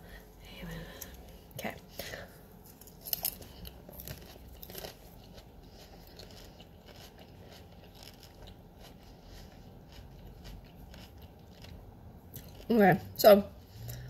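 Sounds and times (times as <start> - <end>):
person chewing popcorn: 2.7 - 12.8.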